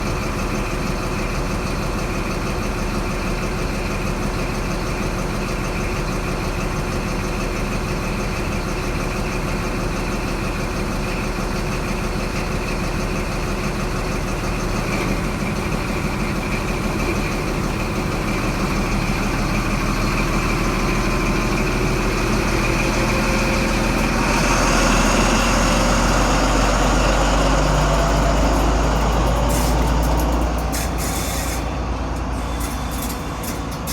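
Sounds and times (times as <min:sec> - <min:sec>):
diesel engines idling: 0:00.0 - 0:33.9
hiss: 0:29.1 - 0:31.7.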